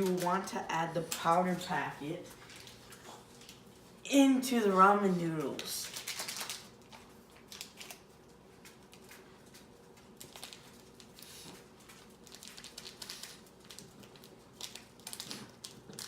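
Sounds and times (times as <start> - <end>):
seasoning packet crinkling: 5.6 - 16.0.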